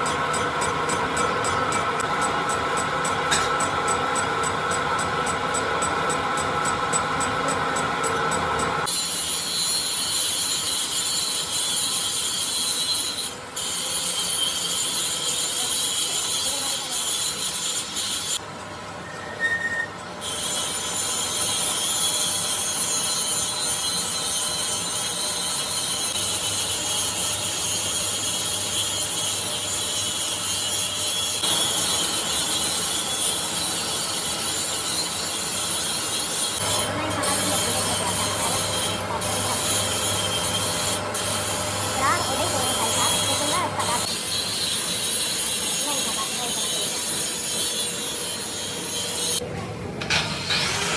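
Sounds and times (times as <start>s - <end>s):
crankshaft machining scraping: 0.0s - 49.4s, 50.0s - 50.9s.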